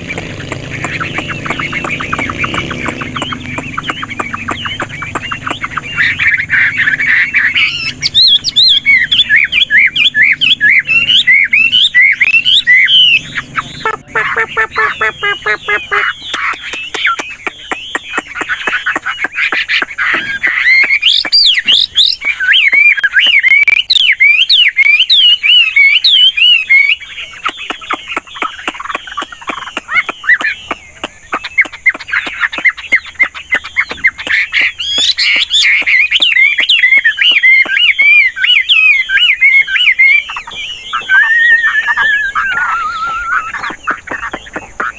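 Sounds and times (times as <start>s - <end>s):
bird singing whistled notes: 0.0s - 44.9s.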